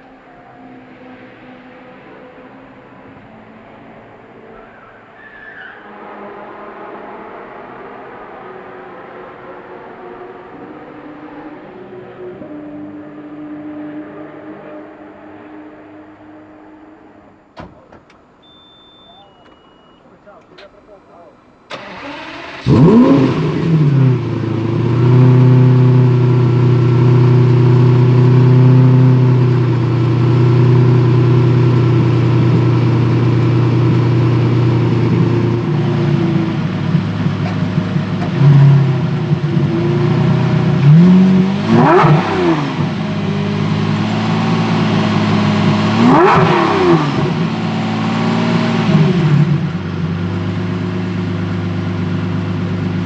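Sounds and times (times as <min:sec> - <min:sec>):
sports car engine idling and revving: 0:20.6 - 0:53.0.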